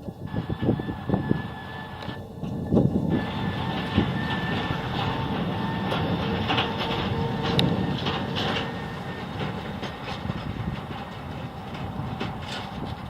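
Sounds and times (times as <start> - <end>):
airliner rumbling on runway: 0.0 - 13.0
faint steady tones: 0.0 - 13.0
knocks and rattles: 3.7 - 13.0.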